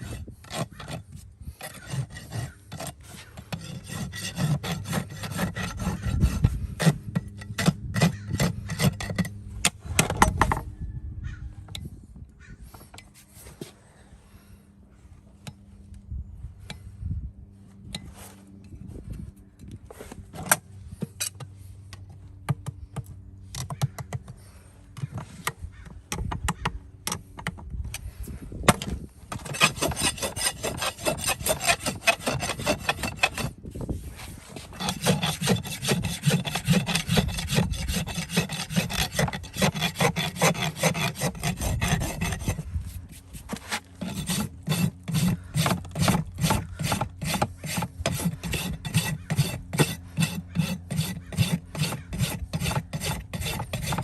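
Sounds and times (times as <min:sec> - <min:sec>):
rasp filing a hoof: 0:00.0 - 0:10.6, 0:28.0 - 0:54.0.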